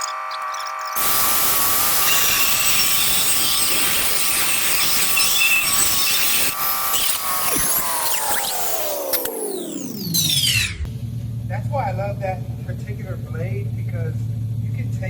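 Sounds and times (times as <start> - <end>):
power tool grinding tile: 0.9 - 10.9.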